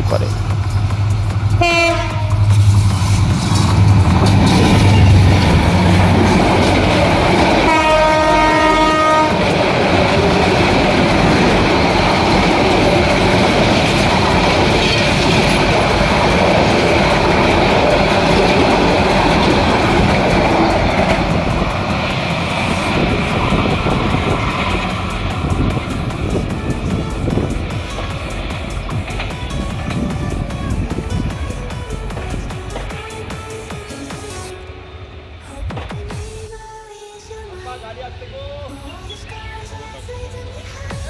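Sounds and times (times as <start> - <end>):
train rumble and clatter: 0.0 - 41.0
train horn: 1.6 - 2.5, 7.6 - 10.6.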